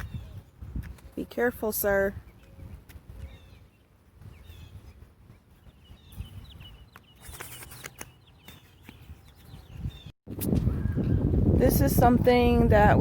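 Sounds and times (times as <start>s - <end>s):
small birds chirping: 0.0s - 11.3s.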